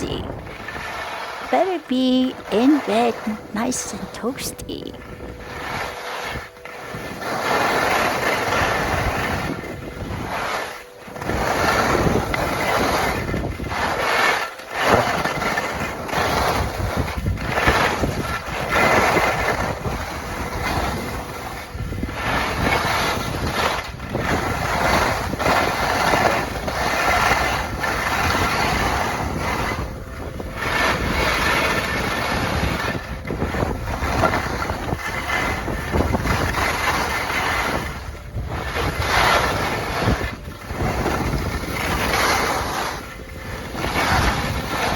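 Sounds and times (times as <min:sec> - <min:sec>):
gusting wind on microphone: 0:00.0 - 0:44.9.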